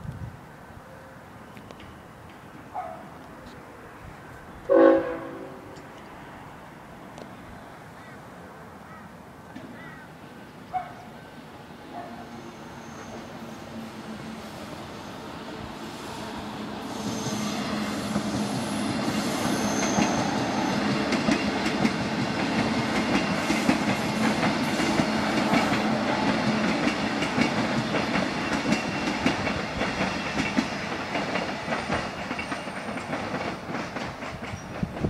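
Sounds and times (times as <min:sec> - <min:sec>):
electric train running past: 0:00.2 - 0:08.8, 0:09.4 - 0:35.0
wheels clacking over rail joints: 0:17.2 - 0:35.0.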